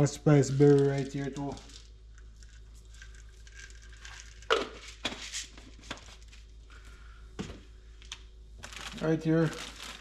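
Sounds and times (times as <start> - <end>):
packaging knocks and rustles: 8.6 - 10.0.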